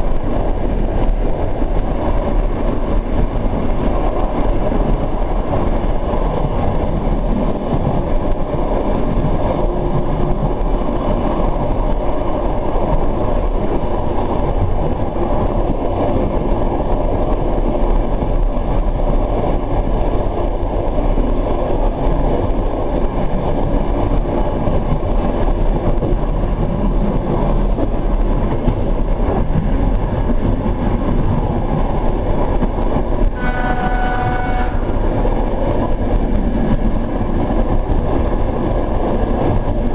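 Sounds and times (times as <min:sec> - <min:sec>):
train wheels rumbling on rails: 0:00.0 - 0:39.9
train horn: 0:33.3 - 0:35.0.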